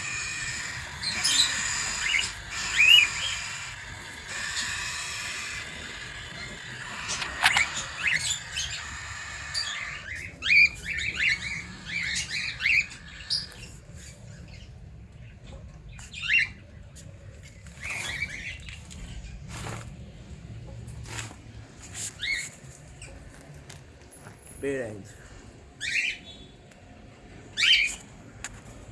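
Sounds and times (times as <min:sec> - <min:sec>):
cockatiels chirping and squawking: 0:00.0 - 0:14.7, 0:22.2 - 0:23.1, 0:25.8 - 0:26.2, 0:27.6 - 0:28.0.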